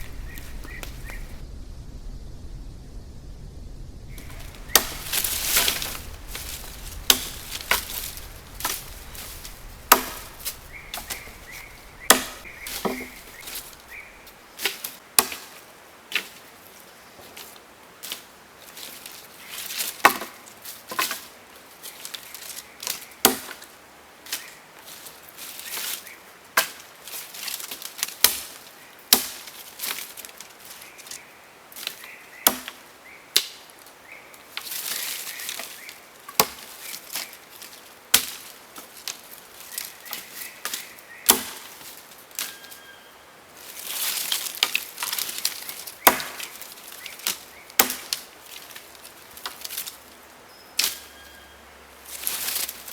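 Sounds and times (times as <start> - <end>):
rustling noise: 0.0 - 15.0, 34.4 - 42.8, 43.5 - 47.5, 52.0 - 52.9.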